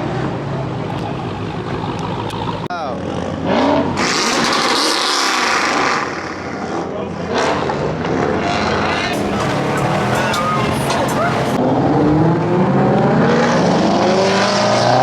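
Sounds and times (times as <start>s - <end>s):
car engine revving: 9.2s - 11.6s
people shouting: 9.2s - 11.6s.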